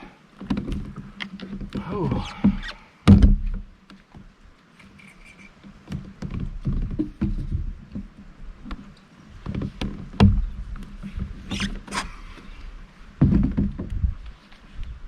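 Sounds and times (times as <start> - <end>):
knocks against kayak hull: 0.4 - 4.3, 5.9 - 8.8, 9.4 - 12.0, 13.2 - 14.2.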